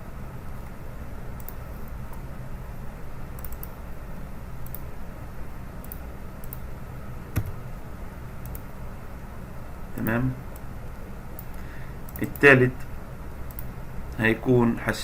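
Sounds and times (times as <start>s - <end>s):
low background hum: 0.0s - 15.0s
mouse clicks: 1.4s - 2.2s, 3.4s - 3.8s, 4.6s - 4.9s, 5.8s - 6.7s, 7.4s - 7.6s, 8.4s - 8.7s, 13.5s - 13.7s
keyboard keystrokes: 7.4s - 7.6s.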